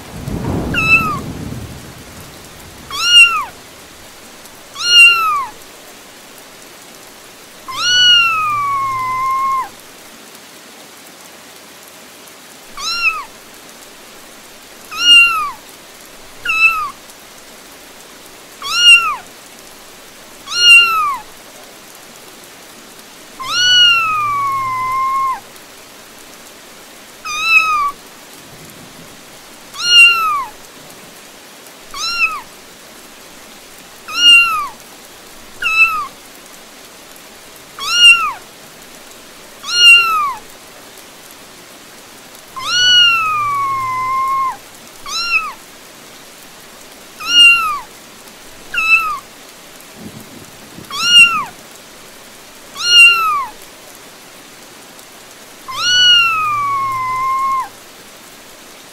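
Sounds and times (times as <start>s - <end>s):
rain hissing: 0.0s - 58.9s
cat meowing: 0.7s - 1.2s, 2.9s - 3.6s, 4.7s - 5.6s, 7.6s - 9.8s, 12.8s - 13.3s, 14.9s - 15.6s, 16.4s - 17.0s, 18.6s - 19.2s, 20.5s - 21.3s, 23.4s - 25.5s, 27.2s - 28.0s, 29.7s - 30.6s, 31.9s - 32.5s, 34.1s - 34.8s, 35.6s - 36.1s, 37.8s - 38.4s, 39.6s - 40.4s, 42.6s - 45.6s, 47.2s - 47.9s, 48.7s - 49.2s, 50.9s - 51.6s, 52.8s - 53.6s, 55.7s - 57.8s.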